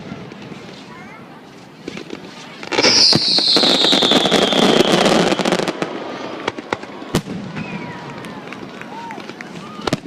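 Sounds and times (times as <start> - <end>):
fireworks crackling: 0.0 - 10.0
firework pops: 1.8 - 5.8
whistling firework shell: 2.7 - 5.8, 7.2 - 8.1
sharp firework bang: 2.7 - 5.9.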